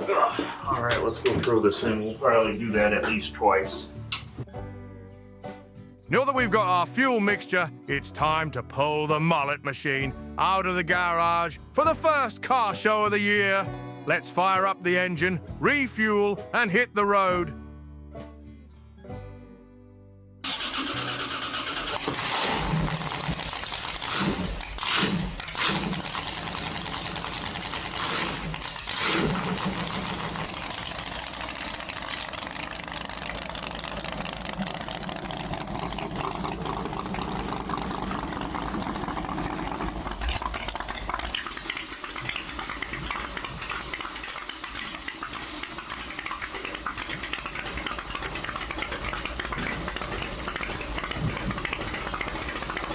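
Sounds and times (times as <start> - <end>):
fuel rushing into a tank: 0.0 - 4.5, 20.4 - 52.9.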